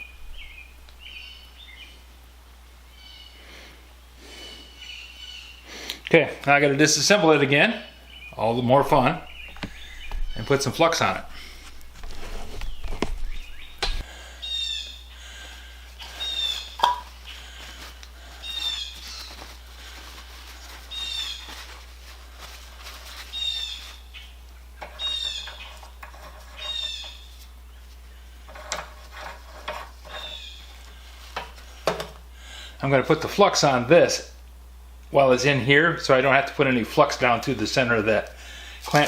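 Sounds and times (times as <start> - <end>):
songbird chirping: 0.0 - 2.1, 7.8 - 11.2, 12.5 - 15.2.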